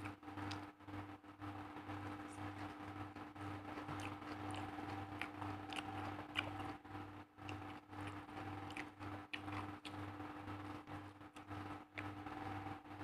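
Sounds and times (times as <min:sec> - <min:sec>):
crisp crunching of chewing greens: 0:03.5 - 0:12.6.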